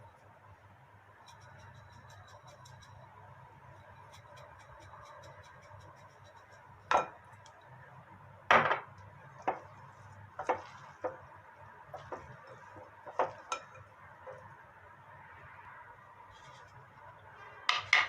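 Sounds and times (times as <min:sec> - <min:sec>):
hard objects knocking on wood: 0:12.0 - 0:13.7, 0:17.7 - 0:18.0.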